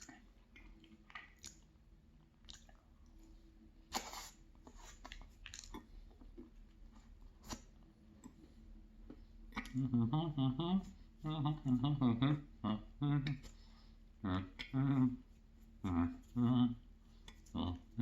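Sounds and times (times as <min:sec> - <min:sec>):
small mouth clicks: 0:00.0 - 0:01.7, 0:02.4 - 0:02.8, 0:09.5 - 0:09.9
person chewing: 0:00.0 - 0:03.2, 0:03.9 - 0:08.4
lip smack: 0:03.9 - 0:05.9.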